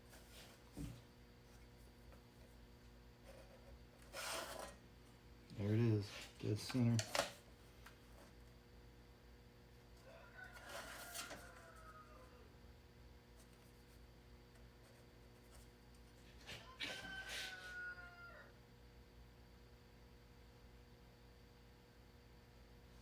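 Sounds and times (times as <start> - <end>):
rooster crowing: 10.0 - 12.6, 16.4 - 18.6.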